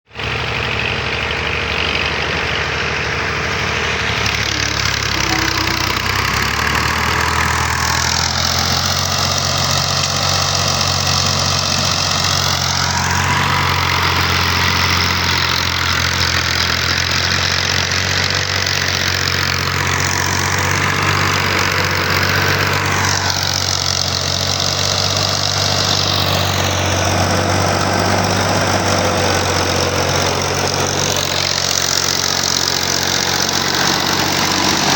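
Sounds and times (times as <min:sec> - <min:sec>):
tractor engine running: 0:00.1 - 0:34.9
hiss sweeping in pitch: 0:03.8 - 0:07.0.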